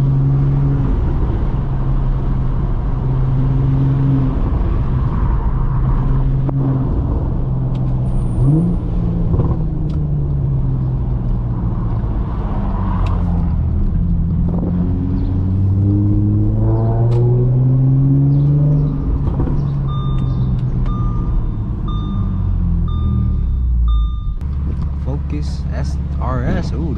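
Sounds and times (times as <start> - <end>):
car engine revving: 0.0 - 26.9
repeated electronic beep: 19.8 - 24.4.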